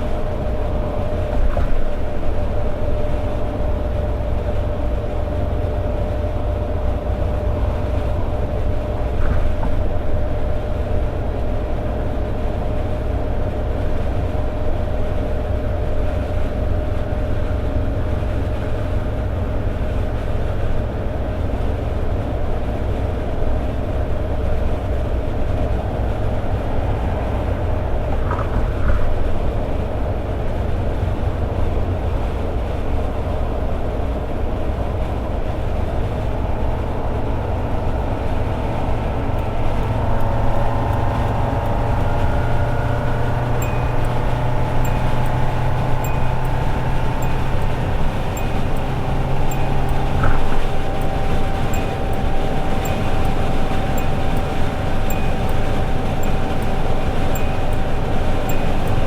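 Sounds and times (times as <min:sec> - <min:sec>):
car engine cruising: 0:00.0 - 0:59.0
road noise: 0:00.0 - 0:59.0
faint regular ticking: 0:36.0 - 0:59.0.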